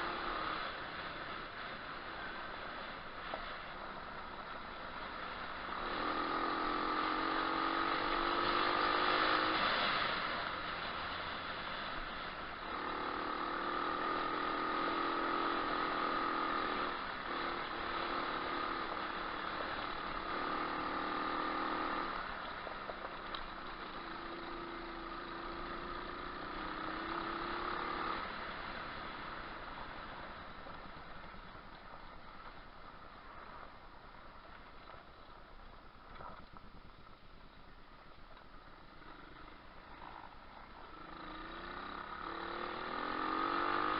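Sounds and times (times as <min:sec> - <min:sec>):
pit bike engine revving: 0:05.6 - 0:10.4, 0:12.6 - 0:22.4, 0:23.7 - 0:31.2, 0:38.9 - 0:43.9.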